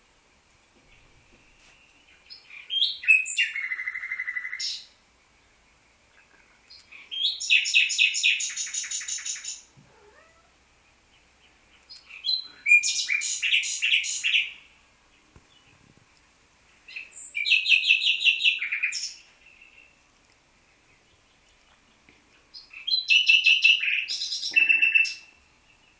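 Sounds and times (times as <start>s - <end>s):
songbird singing: 0.1s - 25.9s.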